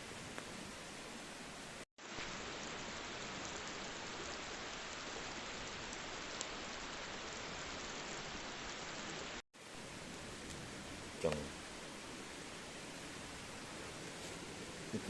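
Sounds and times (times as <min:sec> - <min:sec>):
steady rain hissing: 0:00.0 - 0:15.0
raindrops ticking: 0:09.9 - 0:11.8.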